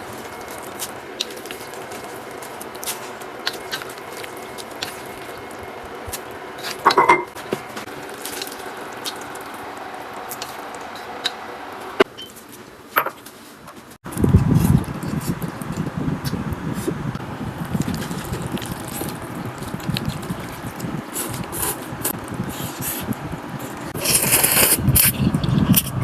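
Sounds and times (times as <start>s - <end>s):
utensils clattering against dishes: 6.6s - 7.4s.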